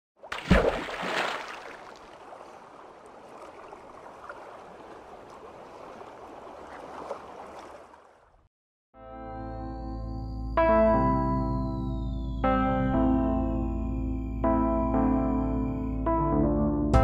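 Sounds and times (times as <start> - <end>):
water gurgling: 0.2 - 8.1.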